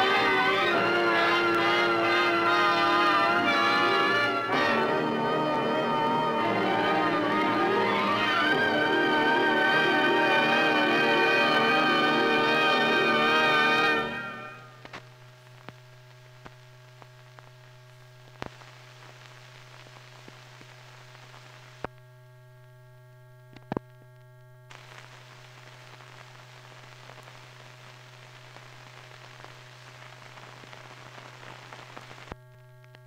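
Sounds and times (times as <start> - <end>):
film soundtrack hum and hiss: 0.0 - 33.0
crackling clicks and pops: 14.7 - 33.0.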